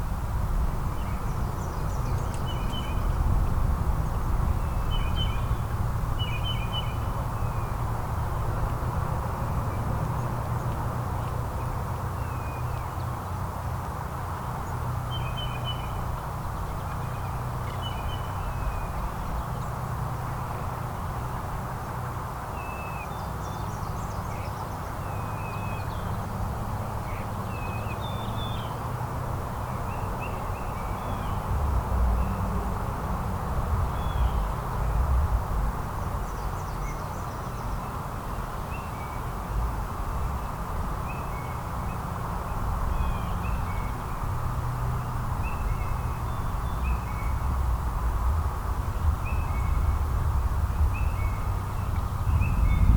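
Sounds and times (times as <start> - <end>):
low background rumble: 42.2 - 52.9.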